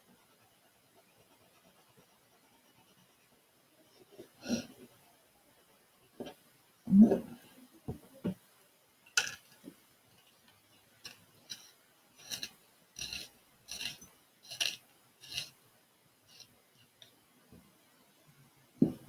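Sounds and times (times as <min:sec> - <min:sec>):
pencil scratching on paper: 0:00.2 - 0:03.4, 0:11.5 - 0:15.6.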